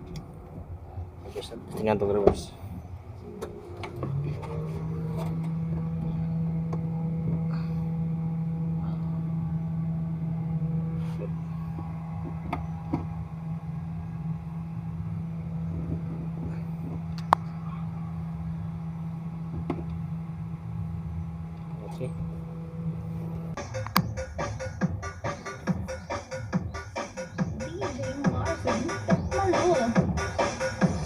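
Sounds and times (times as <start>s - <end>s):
car engine idling: 0.0s - 31.0s
sharp clicks: 23.6s - 24.1s.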